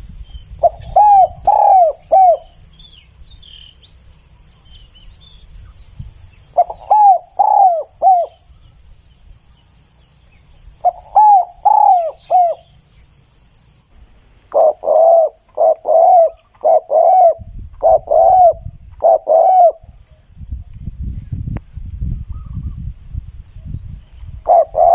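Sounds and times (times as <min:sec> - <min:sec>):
dove cooing: 0:00.6 - 0:02.5, 0:06.6 - 0:08.4, 0:10.8 - 0:12.8, 0:14.5 - 0:19.9, 0:24.4 - 0:24.9.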